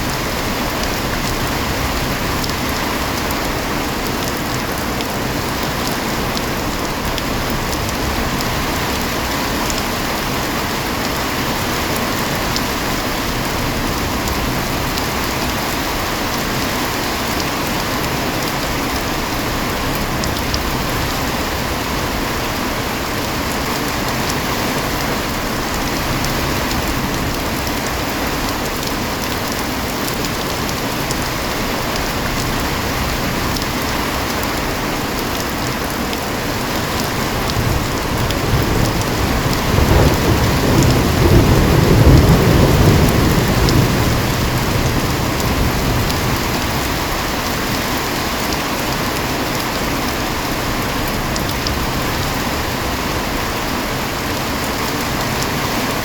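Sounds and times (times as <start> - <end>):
heavy rain falling: 0.0 - 56.0
low roll of thunder: 37.2 - 47.3.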